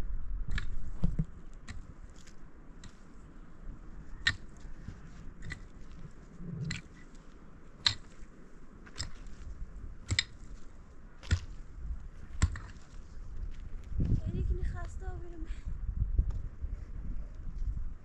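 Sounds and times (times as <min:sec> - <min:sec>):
sharp crunching strikes: 0:08.9 - 0:12.9.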